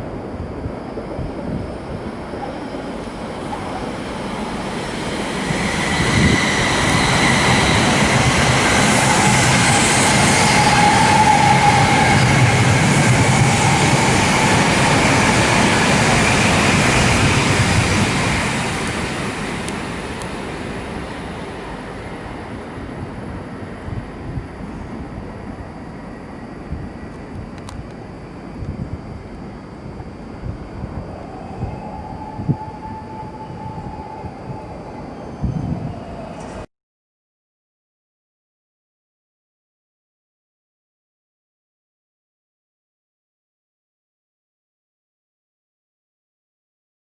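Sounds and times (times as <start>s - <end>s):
high-speed train passing: 0.0s - 36.7s.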